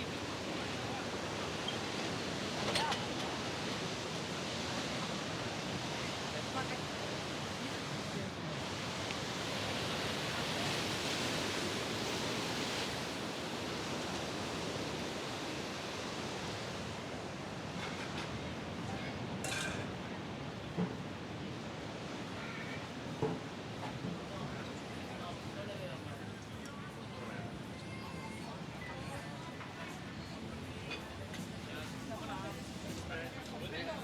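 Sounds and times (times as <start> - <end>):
surf washing on shore: 0.0 - 25.8.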